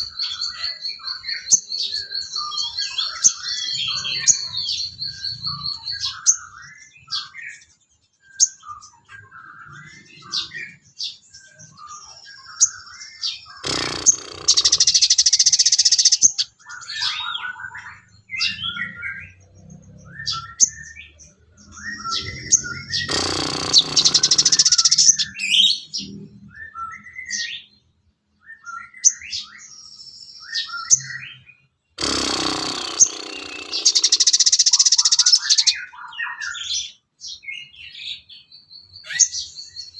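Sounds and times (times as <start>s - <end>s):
bird chirping and whistling: 0.0s - 7.4s, 8.3s - 19.4s, 20.1s - 27.8s, 28.5s - 31.5s, 32.6s - 37.7s
harsh bird chattering: 12.6s - 19.0s, 21.6s - 26.1s, 32.0s - 35.9s.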